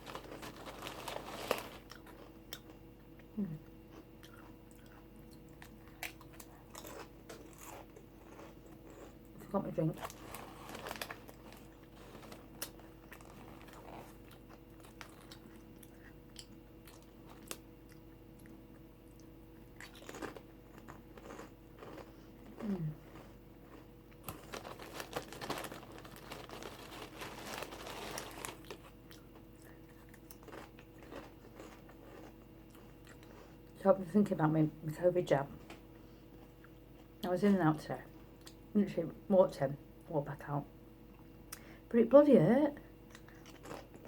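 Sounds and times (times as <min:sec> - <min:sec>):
chewing crunchy crisps: 0:00.0 - 0:33.8, 0:43.0 - 0:44.0.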